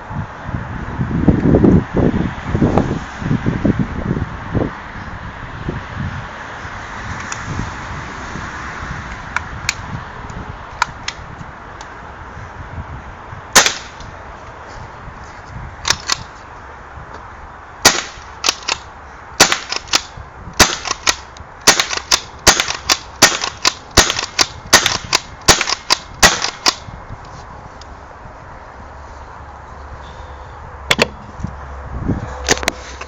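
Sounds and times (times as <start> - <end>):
paintball gun pops: 30.9 - 31.2.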